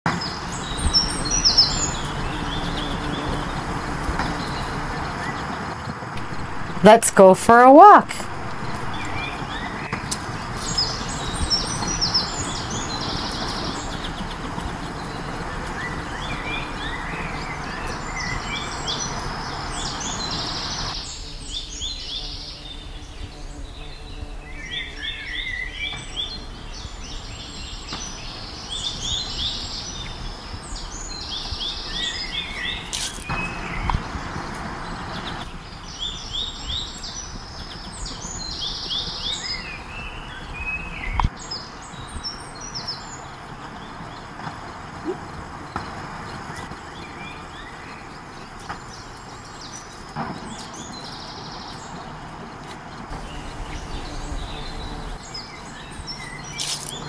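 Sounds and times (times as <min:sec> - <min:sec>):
songbirds chirping: 0:00.1 - 0:57.0.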